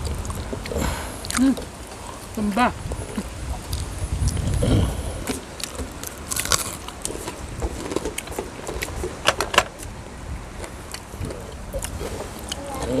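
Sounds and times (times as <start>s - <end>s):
chewing crispy fried food: 3.0s - 9.1s.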